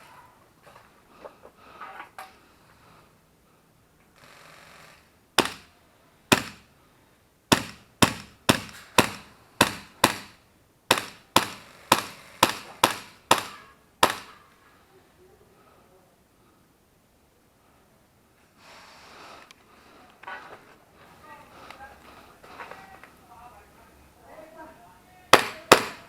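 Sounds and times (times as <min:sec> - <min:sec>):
airsoft gun shots: 0:05.4 - 0:06.7, 0:07.5 - 0:14.4, 0:25.3 - 0:26.0
brief gas hiss: 0:18.6 - 0:19.6.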